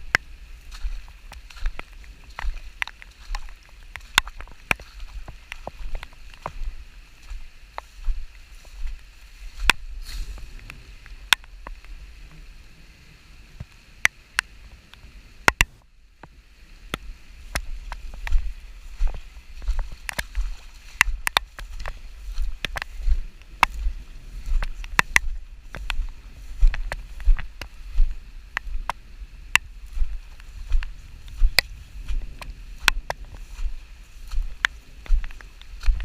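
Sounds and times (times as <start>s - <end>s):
sharp ticks and taps: 0.0s - 6.7s, 7.3s - 9.0s, 10.6s - 11.9s, 13.6s - 33.7s, 34.3s - 36.0s
wind buffeting microphone: 16.6s - 36.0s.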